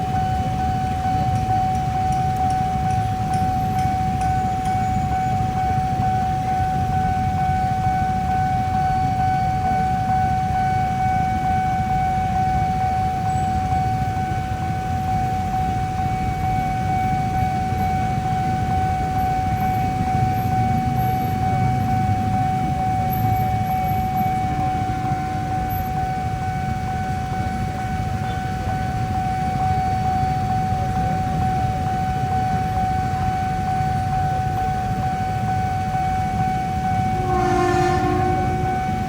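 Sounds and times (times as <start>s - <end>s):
level crossing alarm tone: 0.0s - 39.0s
traffic rumble: 0.0s - 39.0s.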